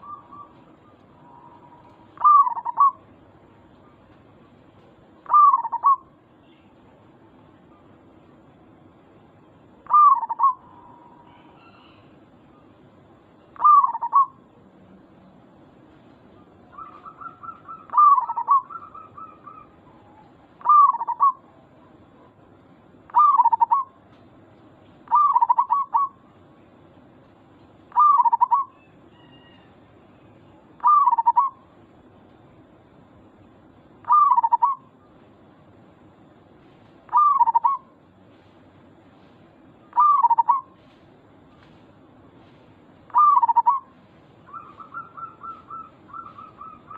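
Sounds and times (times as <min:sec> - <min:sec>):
dove cooing: 0:00.0 - 0:03.1, 0:05.2 - 0:06.1, 0:09.8 - 0:12.0, 0:13.6 - 0:14.4, 0:16.6 - 0:22.4, 0:23.1 - 0:24.0, 0:25.0 - 0:26.2, 0:27.9 - 0:29.6, 0:30.8 - 0:31.6, 0:34.0 - 0:35.0, 0:37.1 - 0:38.0, 0:39.9 - 0:40.8, 0:43.1 - 0:46.9.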